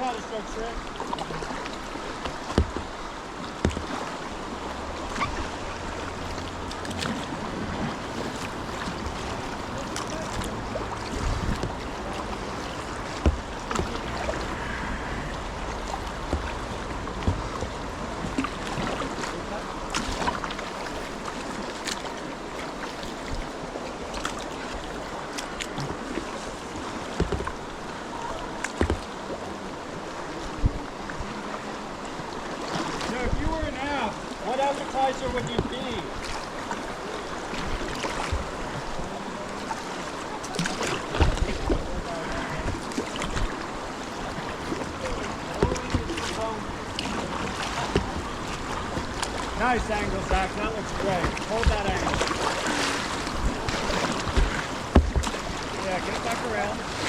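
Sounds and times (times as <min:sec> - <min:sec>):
rushing river water: 0:00.0 - 0:57.0
wind buffeting microphone: 0:04.5 - 0:20.5, 0:40.9 - 0:56.1
low thumps: 0:05.0 - 0:19.0.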